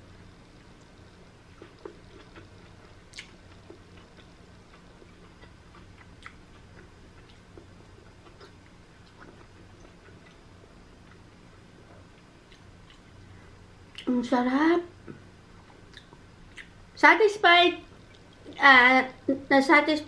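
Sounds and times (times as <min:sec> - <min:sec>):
steady low hum: 0:00.0 - 0:20.0
chewing with wet mouth clicks: 0:01.5 - 0:10.4, 0:12.2 - 0:13.1, 0:15.0 - 0:16.8.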